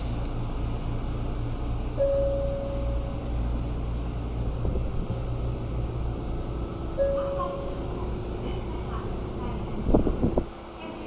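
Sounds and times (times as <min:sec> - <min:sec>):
train low rumble: 0:00.0 - 0:11.0
high beep: 0:02.0 - 0:03.1, 0:07.0 - 0:07.8.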